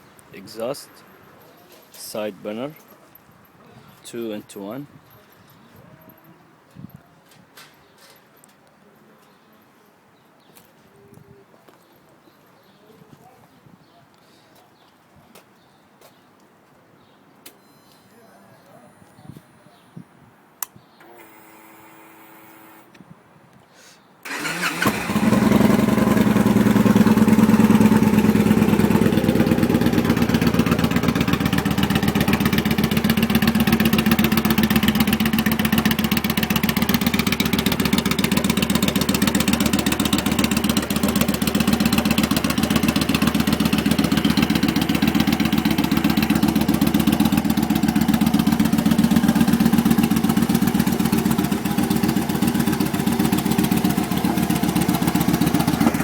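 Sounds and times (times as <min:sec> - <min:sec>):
motorcycle engine idling: 0:24.3 - 0:56.0.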